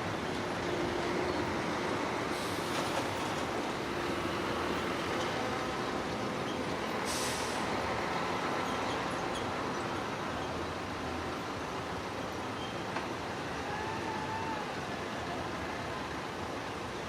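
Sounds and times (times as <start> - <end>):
air hiss: 7.0 - 7.7.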